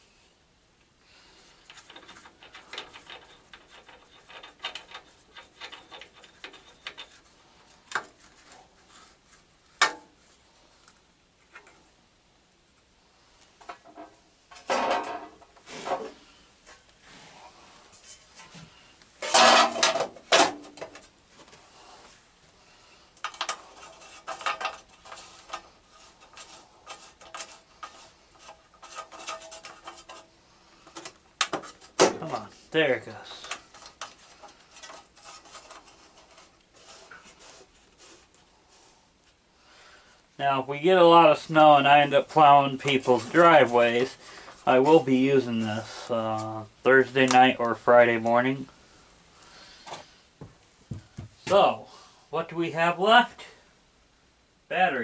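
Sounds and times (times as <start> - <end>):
metal tools clinking and scraping: 1.6 - 7.3, 23.2 - 37.4.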